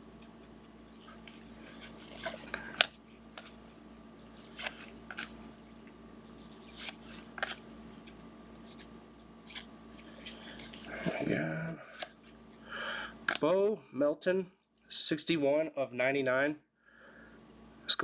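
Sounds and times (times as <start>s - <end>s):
trading cards rustling and clicking: 0.2s - 12.6s.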